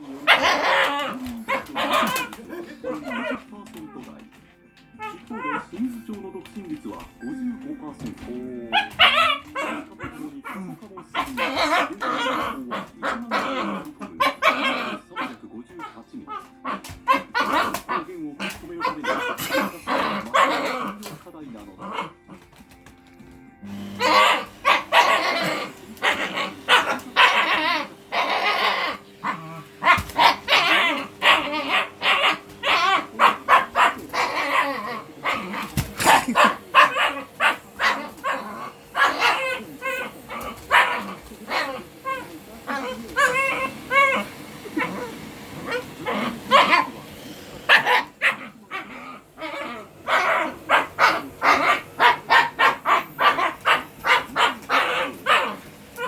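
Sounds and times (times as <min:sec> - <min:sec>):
dog barking: 0:00.2 - 0:03.4, 0:08.7 - 0:21.0, 0:24.0 - 0:56.0
dog yipping: 0:00.3 - 0:03.4, 0:08.7 - 0:10.2, 0:14.2 - 0:15.4, 0:16.3 - 0:20.8, 0:24.0 - 0:46.9, 0:47.7 - 0:56.0.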